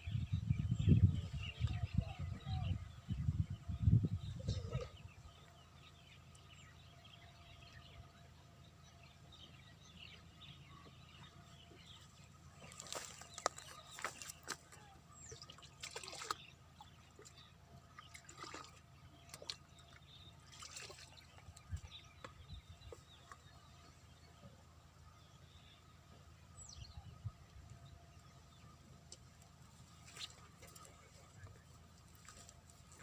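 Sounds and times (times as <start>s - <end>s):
water splashing and dripping: 15.3s - 17.4s, 18.0s - 21.9s.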